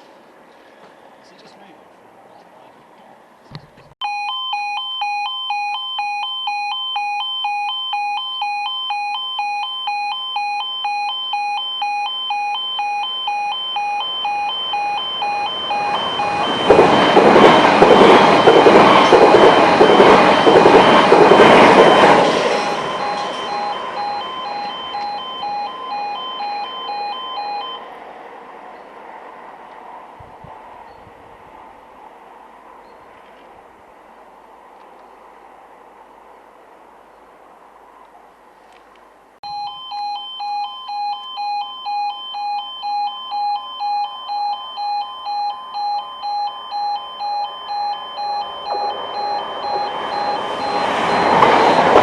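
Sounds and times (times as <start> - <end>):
two-tone crossing alarm: 4.0 - 28.0, 39.4 - 52.0
train rumbling past: 13.7 - 38.5, 47.2 - 52.0.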